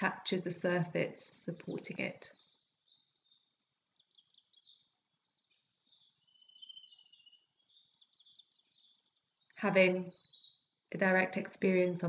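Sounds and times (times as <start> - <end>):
birds chirping: 0.0 - 12.0
bird trill: 2.3 - 11.2.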